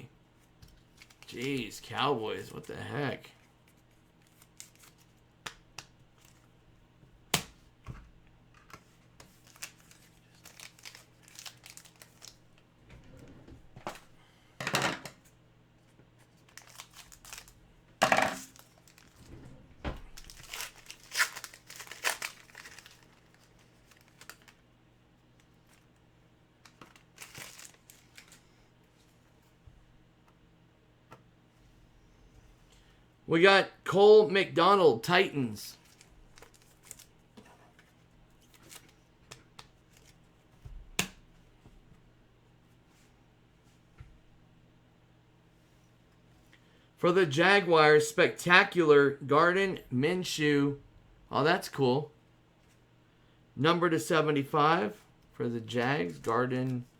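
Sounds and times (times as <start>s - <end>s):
cards being handled: 0.4s - 1.8s, 3.6s - 6.5s, 8.6s - 12.4s, 16.2s - 17.6s, 20.1s - 24.6s, 26.6s - 28.4s, 35.7s - 40.2s
wrapper crinkling and tearing: 0.9s - 1.7s, 4.2s - 5.1s, 9.3s - 12.6s, 16.2s - 17.6s, 18.4s - 19.2s, 20.1s - 24.6s, 26.6s - 28.4s, 35.8s - 37.1s, 38.4s - 39.0s.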